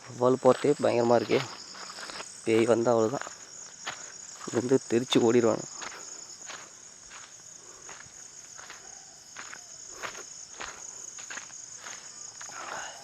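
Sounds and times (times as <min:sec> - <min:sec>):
footsteps on forest floor: 0:00.0 - 0:12.9
insects chirring: 0:00.0 - 0:13.0.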